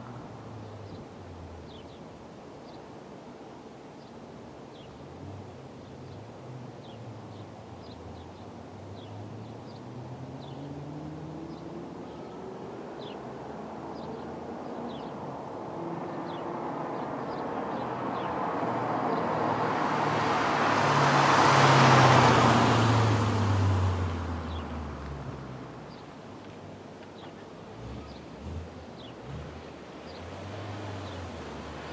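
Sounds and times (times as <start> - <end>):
birds chirping faintly: 0.0 - 31.9
car passing by: 6.1 - 26.2, 27.1 - 31.9.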